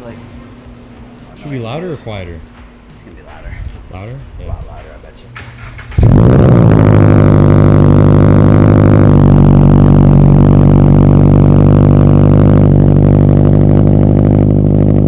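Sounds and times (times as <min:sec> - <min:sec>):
car engine fast idling: 0:05.5 - 0:15.0.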